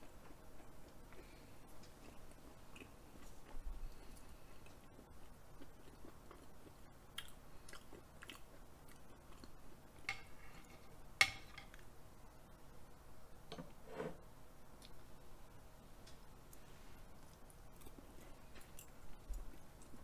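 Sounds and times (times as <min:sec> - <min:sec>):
chewing soft food: 0:00.0 - 0:10.0, 0:16.0 - 0:20.0.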